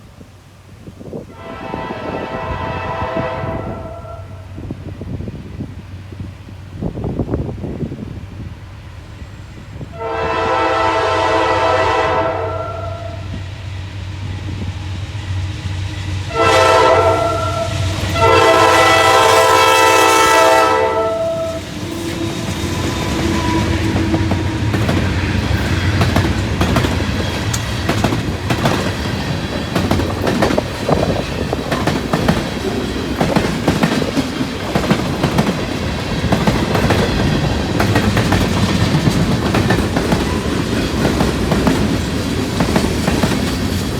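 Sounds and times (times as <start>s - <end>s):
freight train rolling past: 0.0s - 43.9s
train air horn blasts: 1.3s - 4.6s, 9.8s - 13.5s, 16.3s - 26.4s
wheels clacking over rail joints: 21.4s - 43.9s.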